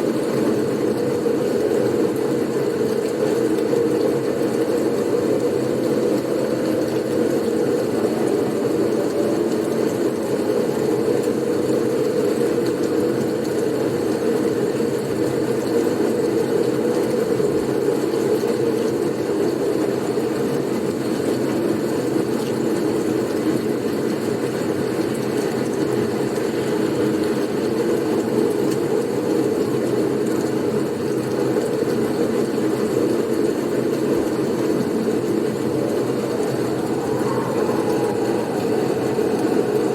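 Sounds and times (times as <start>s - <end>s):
blizzard wind rushing: 34.2s - 39.9s.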